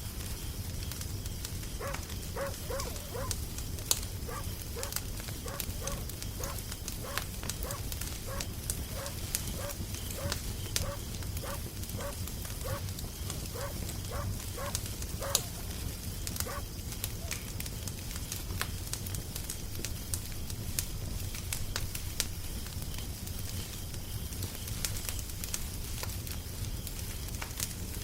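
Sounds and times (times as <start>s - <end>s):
animal short pitched calls: 1.8s - 3.4s, 4.3s - 12.8s, 13.5s - 15.6s.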